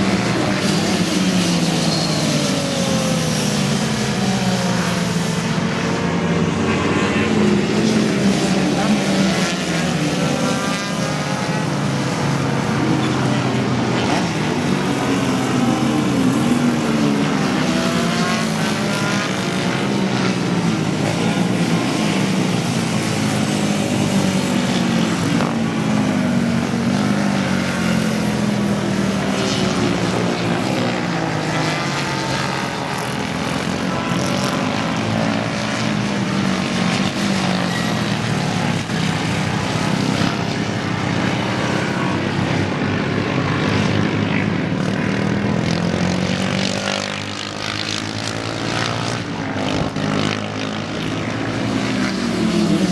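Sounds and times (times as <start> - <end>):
racing motorcycle engines revving: 0.0 - 52.9.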